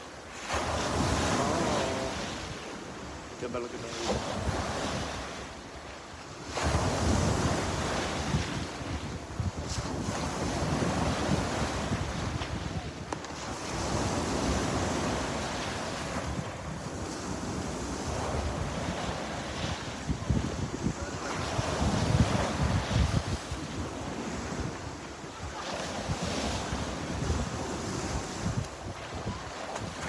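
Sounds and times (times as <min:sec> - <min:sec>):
sea waves breaking on shore: 0:00.0 - 0:30.0
wind buffeting microphone: 0:06.3 - 0:30.0.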